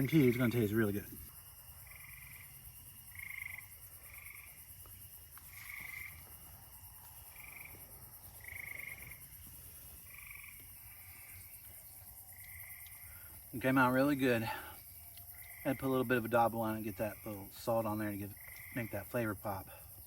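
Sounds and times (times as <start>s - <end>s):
frogs calling with trills: 0.0s - 20.0s.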